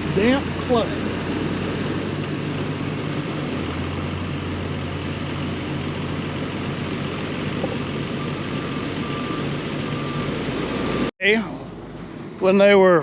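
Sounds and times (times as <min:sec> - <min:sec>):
diesel engine running: 0:00.0 - 0:13.0
backup alarm beeping: 0:08.2 - 0:11.1.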